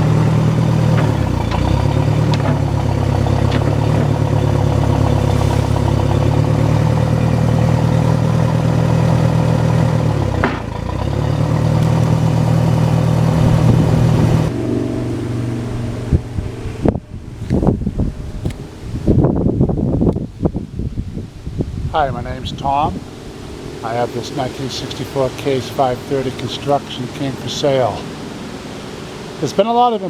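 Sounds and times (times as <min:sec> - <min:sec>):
loader backhoe engine running: 0:00.0 - 0:30.0
knocks: 0:00.9 - 0:04.2, 0:10.4 - 0:10.8
wind on microphone: 0:13.2 - 0:24.2.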